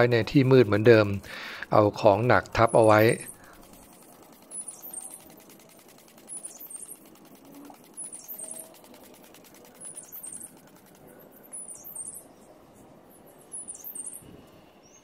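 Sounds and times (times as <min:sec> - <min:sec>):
faint background noise: 0:00.0 - 0:15.0
small birds chirping: 0:00.0 - 0:15.0.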